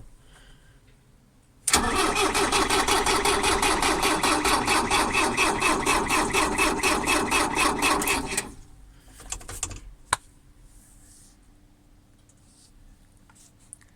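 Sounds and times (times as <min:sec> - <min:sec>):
diesel engine cranking: 0:01.7 - 0:08.8.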